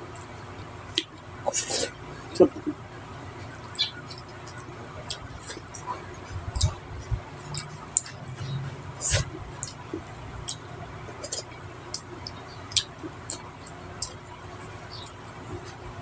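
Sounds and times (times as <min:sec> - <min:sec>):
lip smacks and clicks: 0:03.6 - 0:08.2, 0:09.0 - 0:14.2
wet chewing: 0:03.6 - 0:08.2, 0:09.0 - 0:14.2.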